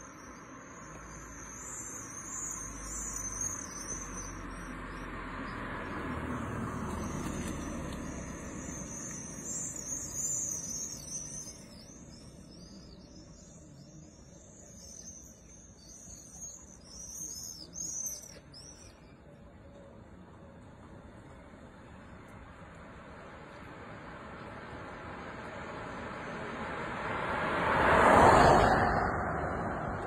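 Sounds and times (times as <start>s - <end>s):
passing car: 0.0s - 18.4s, 19.7s - 30.0s
songbirds singing: 0.0s - 20.6s.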